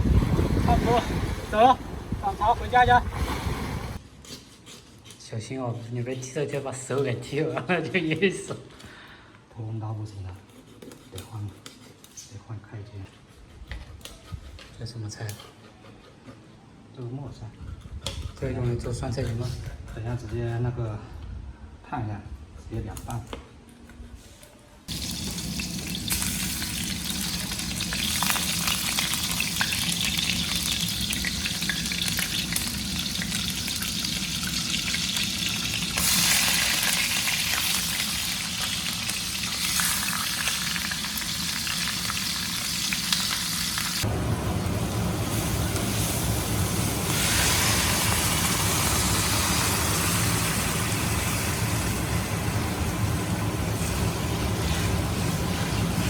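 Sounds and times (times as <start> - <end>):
deep rumble: 0.0 - 4.0
food sizzling in hot oil: 24.9 - 56.0.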